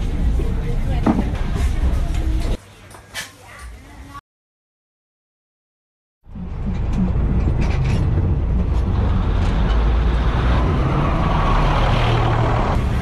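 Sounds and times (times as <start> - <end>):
diesel railcar engine rumble: 0.0 - 2.6, 6.3 - 13.0.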